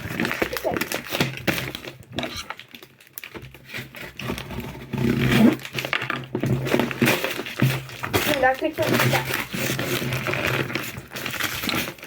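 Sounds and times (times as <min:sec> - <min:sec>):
hands handling cardboard box: 0:00.0 - 0:12.0.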